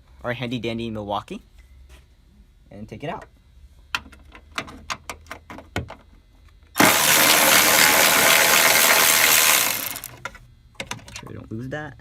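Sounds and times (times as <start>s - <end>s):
cordless ratchet running: 6.8s - 10.1s.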